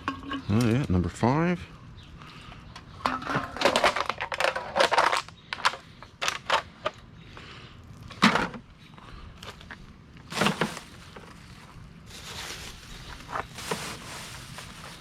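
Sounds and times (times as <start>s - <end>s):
litter clattering in bucket: 10.3s - 10.9s.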